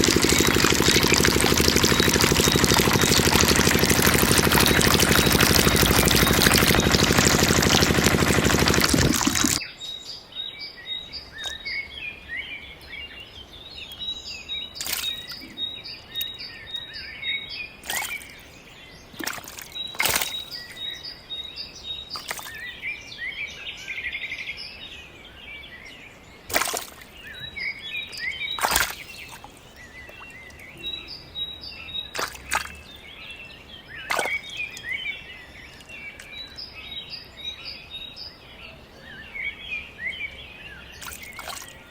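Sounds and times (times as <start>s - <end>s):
sharp clicks: 0.0s - 9.6s
small pump engine running: 0.0s - 9.6s
birds chirping: 0.0s - 41.9s.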